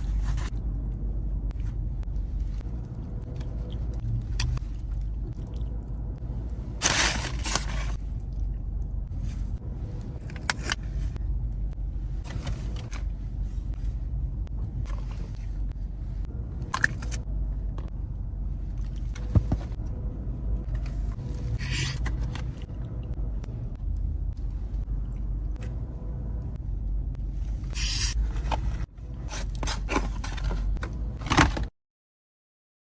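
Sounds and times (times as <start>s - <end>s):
rustling and scraping: 0.0s - 0.6s, 6.8s - 8.1s, 12.1s - 14.0s, 18.6s - 19.8s, 27.4s - 31.7s
steady low rumble: 0.0s - 31.7s.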